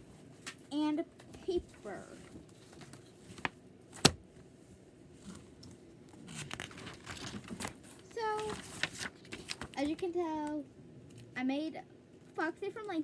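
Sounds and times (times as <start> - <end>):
paper rustling and crinkling: 6.2 - 10.1.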